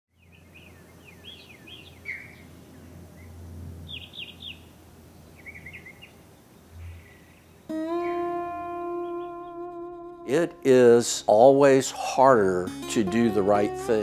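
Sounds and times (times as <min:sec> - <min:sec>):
birds chirping: 0:00.1 - 0:11.8.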